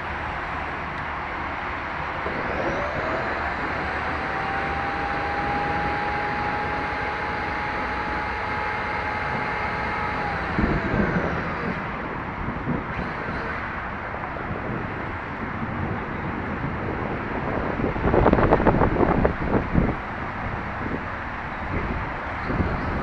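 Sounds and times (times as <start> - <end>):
toy motorcycle motor whining: 2.3 - 11.9.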